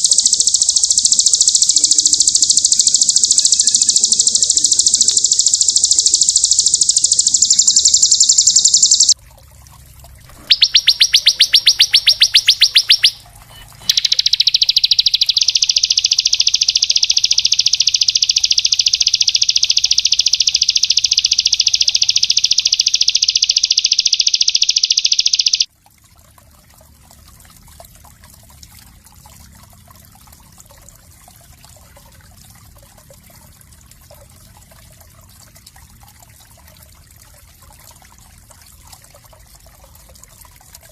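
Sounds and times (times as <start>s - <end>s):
songbird trilling: 0.0s - 9.2s, 10.3s - 25.7s
faint trickle of water: 0.0s - 24.4s, 25.6s - 40.9s.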